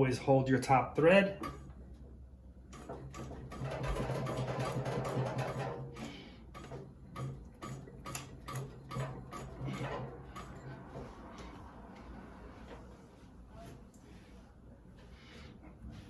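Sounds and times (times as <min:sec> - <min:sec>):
sewing machine stitching: 0:02.7 - 0:11.6.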